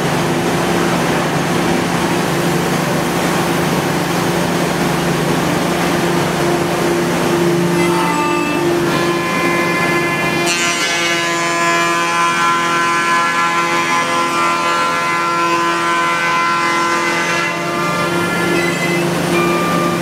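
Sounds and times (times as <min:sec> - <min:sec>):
wood router spindle whine: 0:06.5 - 0:16.4.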